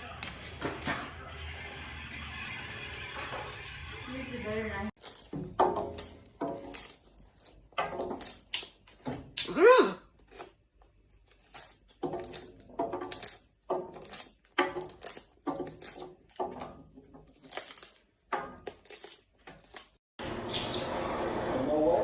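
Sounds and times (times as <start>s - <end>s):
parrot beak crunching: 18.6s - 20.0s.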